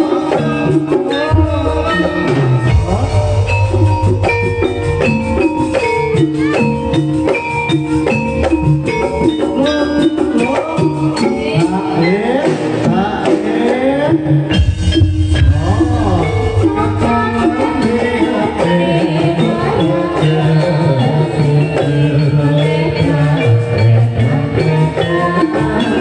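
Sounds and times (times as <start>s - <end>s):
metal-keyed percussion notes: 0.0s - 26.0s
steady drum pulse: 1.3s - 6.5s, 14.5s - 19.2s.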